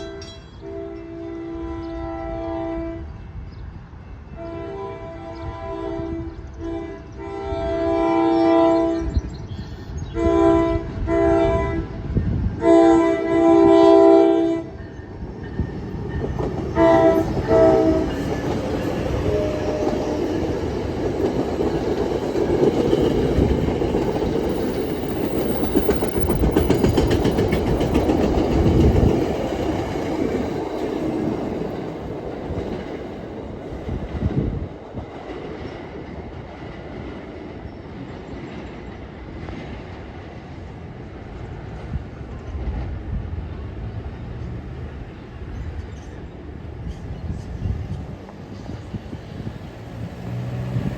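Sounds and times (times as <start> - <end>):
train horn blasts: 0.0 - 3.2, 4.3 - 9.2, 10.1 - 14.8, 16.7 - 20.6
train wheels clattering on rails: 14.8 - 43.2.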